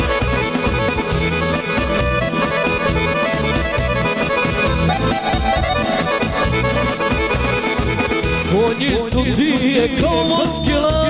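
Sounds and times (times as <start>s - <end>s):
accordion melody: 0.0s - 9.6s
steady beat: 0.0s - 10.2s
bass: 0.0s - 11.0s.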